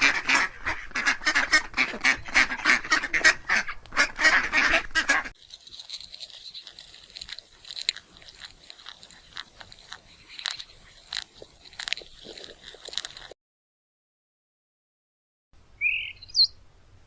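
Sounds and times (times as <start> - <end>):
crisp crunching clicks: 5.4 - 13.4.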